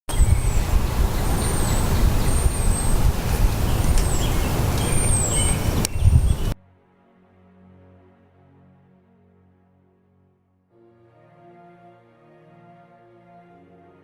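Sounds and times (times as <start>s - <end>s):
loud outdoor rumble: 0.1s - 6.6s
small birds chirping: 0.1s - 6.6s.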